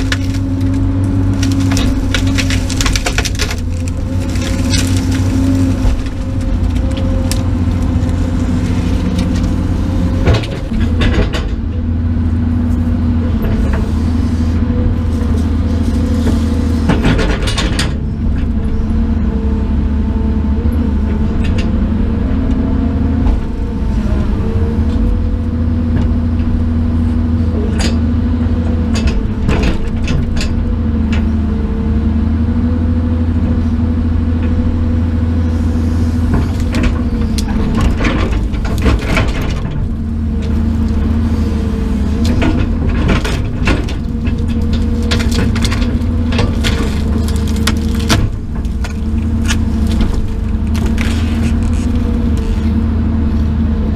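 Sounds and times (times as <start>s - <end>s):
sharp cracks: 0.0s - 8.2s
engine running: 0.0s - 53.9s.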